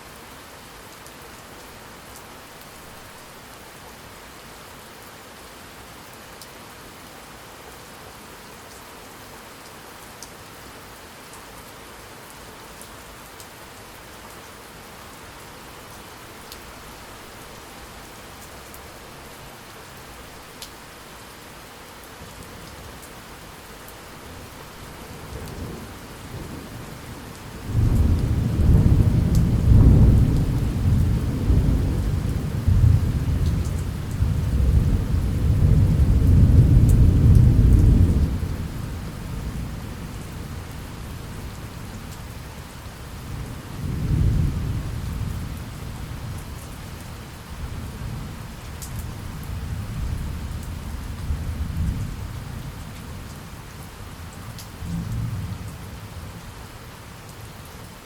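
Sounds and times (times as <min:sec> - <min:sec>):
steady rain: 0:00.0 - 0:58.0
rolling thunder: 0:27.6 - 0:38.7.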